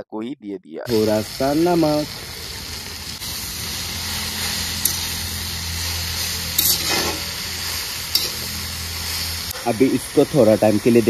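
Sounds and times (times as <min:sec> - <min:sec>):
greens sizzling in a pan: 0:00.9 - 0:11.0
utensil clinking against pan: 0:04.8 - 0:05.2, 0:06.6 - 0:07.2, 0:08.1 - 0:08.5.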